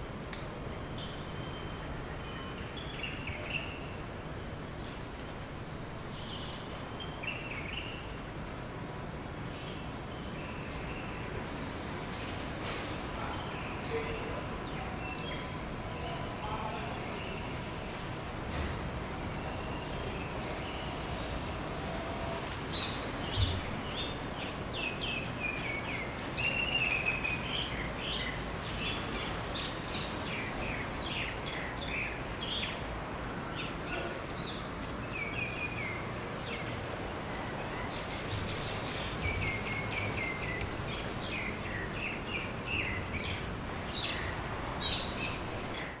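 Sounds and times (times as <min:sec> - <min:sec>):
steady low background noise: 0:00.0 - 0:46.0
birds chirping and singing: 0:22.7 - 0:32.8, 0:37.6 - 0:46.0.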